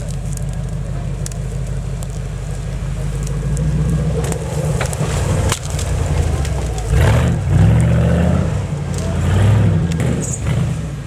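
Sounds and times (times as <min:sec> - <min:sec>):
vehicle engine low rumble: 0:00.0 - 0:11.0.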